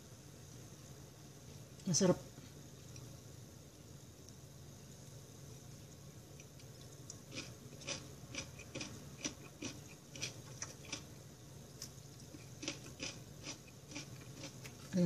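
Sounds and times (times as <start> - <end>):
faint room hum: 0.0 - 15.0
wet chewing crunches: 6.4 - 11.1, 11.8 - 14.9.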